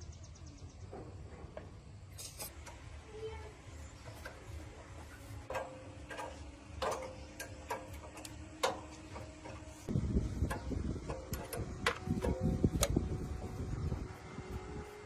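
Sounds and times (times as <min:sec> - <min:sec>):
low rumble: 0:09.8 - 0:15.0.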